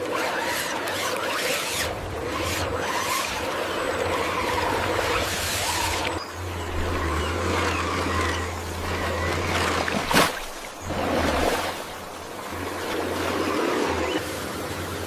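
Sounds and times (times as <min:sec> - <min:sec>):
vehicle running roughly: 0:06.2 - 0:10.1.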